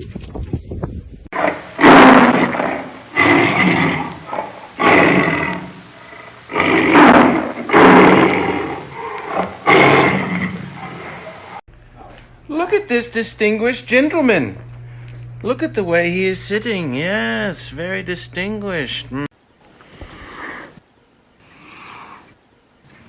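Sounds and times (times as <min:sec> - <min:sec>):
large animal calling harshly: 0:01.4 - 0:11.6.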